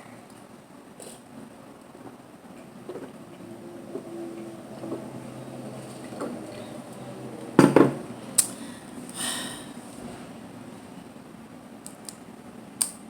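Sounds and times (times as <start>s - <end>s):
heavy knocks of dishes: 7.6s - 8.1s.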